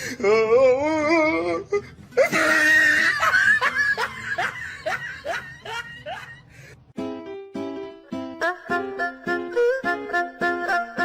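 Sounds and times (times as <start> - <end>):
person laughing hard: 2.2 - 6.5.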